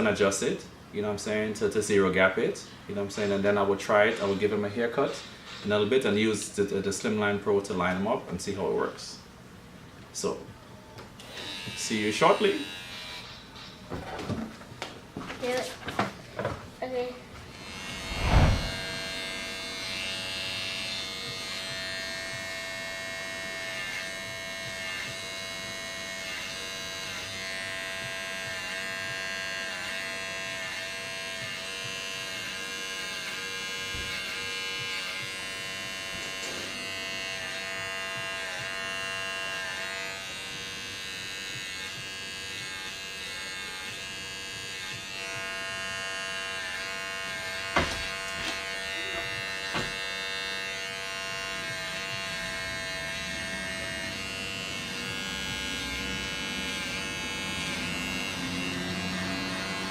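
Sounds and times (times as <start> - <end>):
hair trimmer buzzing: 11.2 - 13.5, 17.5 - 59.9.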